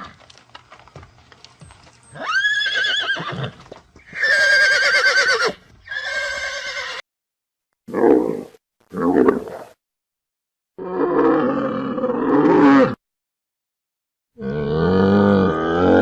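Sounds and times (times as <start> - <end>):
horse whinnying: 2.1 - 7.0.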